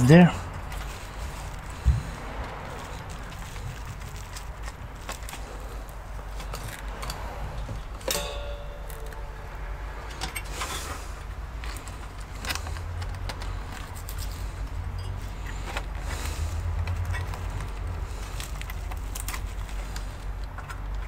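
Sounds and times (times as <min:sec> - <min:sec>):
low steady hum: 0:00.0 - 0:15.8
tools tapping on metal chassis: 0:06.4 - 0:15.9
ringing metallic clink: 0:08.0 - 0:10.9.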